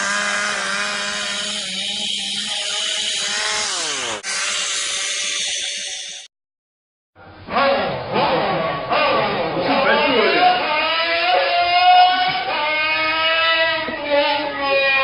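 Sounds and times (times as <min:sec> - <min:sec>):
chainsaw engine running: 0:00.0 - 0:05.2.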